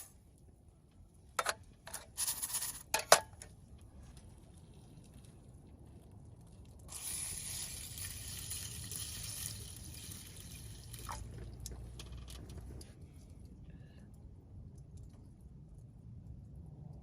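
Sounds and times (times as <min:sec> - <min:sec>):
water pouring into a pot: 0:06.6 - 0:12.6.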